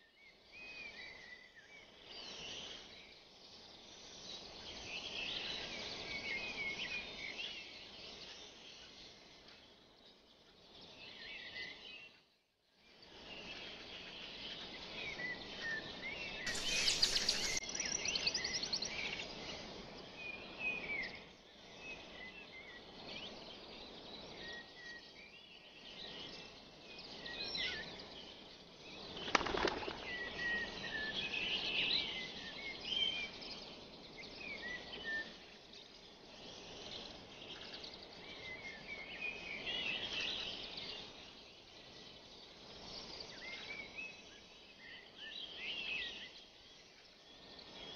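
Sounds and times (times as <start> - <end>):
rustle: 0.0 - 47.9
small birds chirping: 13.5 - 19.4, 25.5 - 47.9
outdoor hiss: 16.5 - 18.6.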